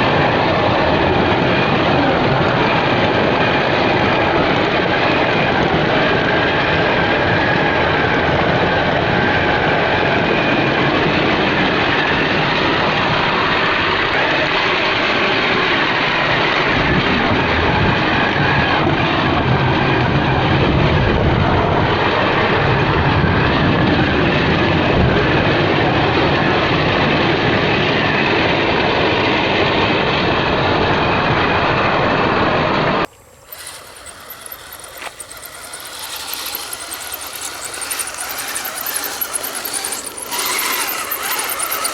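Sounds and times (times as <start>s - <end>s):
toy truck motor and tracks running: 33.1s - 41.9s.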